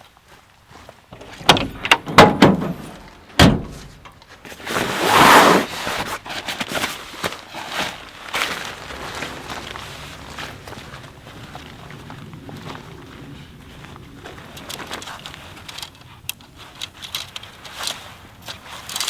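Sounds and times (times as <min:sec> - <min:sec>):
sharp knocks and clatters: 0:01.1 - 0:04.3
heavy thump: 0:01.2 - 0:04.2.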